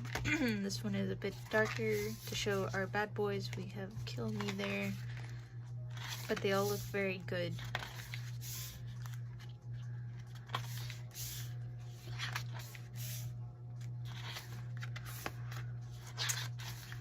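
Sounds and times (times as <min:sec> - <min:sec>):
steady low hum: 0:00.0 - 0:17.0
paper pages rustling: 0:01.3 - 0:02.8, 0:04.0 - 0:06.9, 0:07.5 - 0:09.6, 0:10.2 - 0:13.2, 0:13.8 - 0:17.0.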